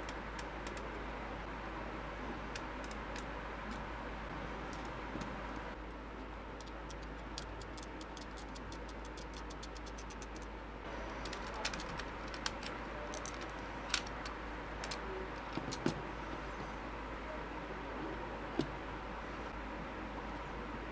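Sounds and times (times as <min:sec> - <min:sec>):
computer mouse clicking: 0:00.0 - 0:01.0, 0:02.5 - 0:03.8, 0:04.7 - 0:05.7, 0:06.6 - 0:10.5, 0:11.2 - 0:16.0
mouse being handled: 0:06.6 - 0:10.5, 0:11.1 - 0:16.7.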